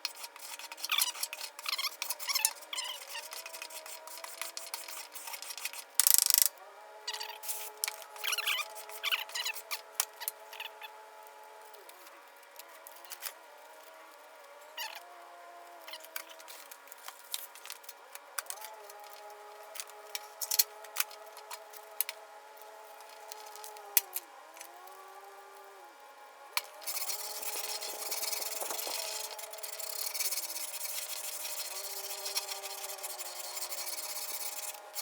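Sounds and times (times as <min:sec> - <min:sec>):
hand sanding scratchy rasping: 0:00.0 - 0:06.0, 0:26.8 - 0:35.0
faint steady hum: 0:00.0 - 0:35.0.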